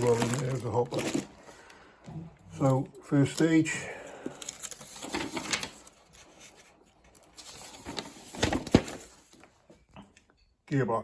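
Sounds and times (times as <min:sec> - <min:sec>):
packaging rustling: 0:00.0 - 0:09.7.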